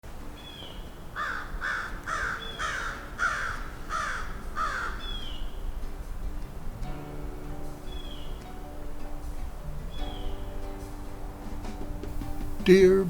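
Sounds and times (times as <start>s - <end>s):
bird harsh calls: 0.4s - 6.8s, 7.8s - 8.6s, 9.9s - 10.7s.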